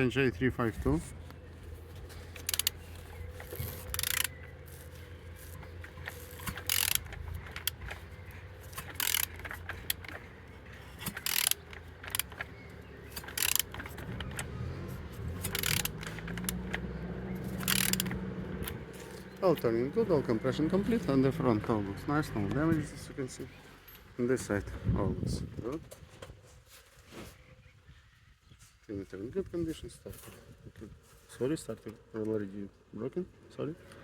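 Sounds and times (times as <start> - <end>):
wrench clicking on engine crankshaft: 2.0 - 19.7.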